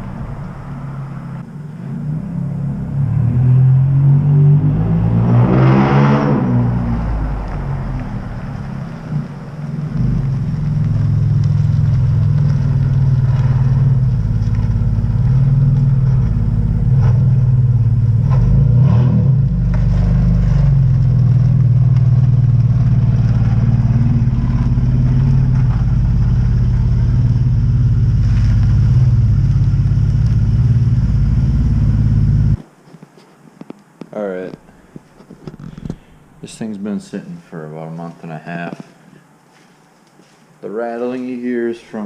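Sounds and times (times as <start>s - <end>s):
car engine idling: 0.0s - 3.1s, 6.8s - 32.6s.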